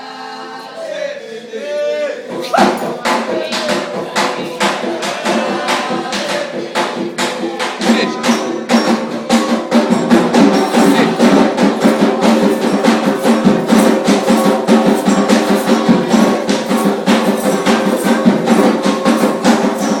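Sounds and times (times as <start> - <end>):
drums: 2.2 - 20.0
wood block percussion: 2.2 - 20.0.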